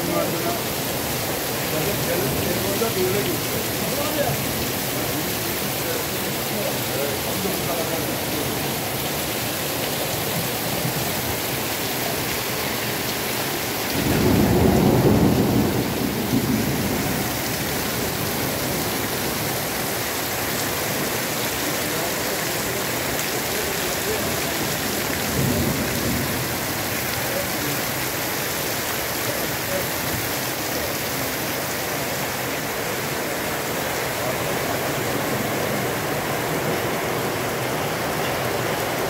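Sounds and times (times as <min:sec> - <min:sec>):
heavy rain falling: 0:00.0 - 0:39.0
thunder rumbling: 0:14.0 - 0:18.7.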